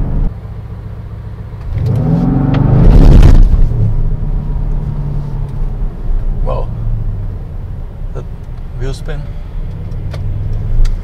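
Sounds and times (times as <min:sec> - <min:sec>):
car engine revving: 0:01.6 - 0:11.0.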